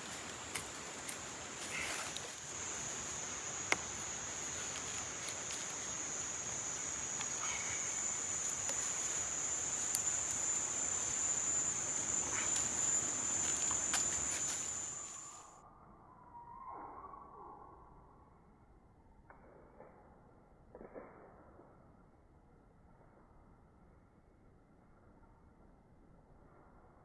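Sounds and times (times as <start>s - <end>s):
faint ticks and clicks: 0.0s - 14.9s
soft background hiss: 0.0s - 15.4s
insects trilling: 0.0s - 15.5s.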